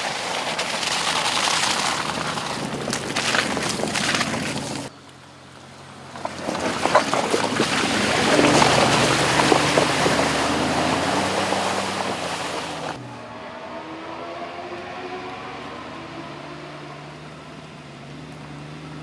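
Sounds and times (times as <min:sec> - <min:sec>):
tyres crackling over rough ground: 0:00.0 - 0:13.0
car engine running low: 0:00.0 - 0:13.7.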